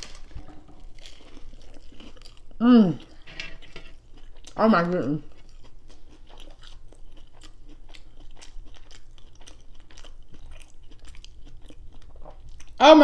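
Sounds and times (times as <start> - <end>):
chewing crunchy fried fish: 0.0 - 3.3, 3.9 - 12.8.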